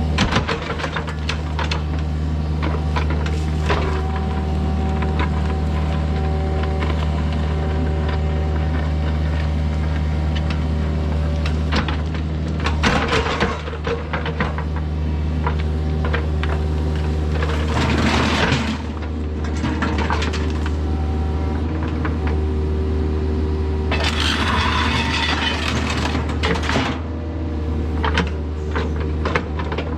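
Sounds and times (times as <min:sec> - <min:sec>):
diesel engine running: 0:00.0 - 0:29.5
scraping and clattering: 0:23.9 - 0:27.0.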